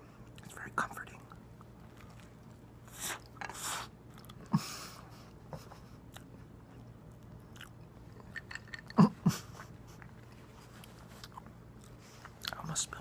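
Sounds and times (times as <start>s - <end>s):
person chewing with wet smacks: 1.2s - 3.4s, 4.0s - 4.5s, 6.0s - 8.4s, 10.0s - 12.6s.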